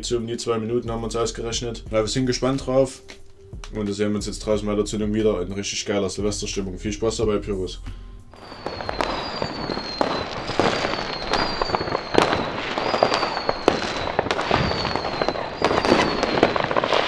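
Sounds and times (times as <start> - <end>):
fireworks banging and crackling: 8.4 - 17.0.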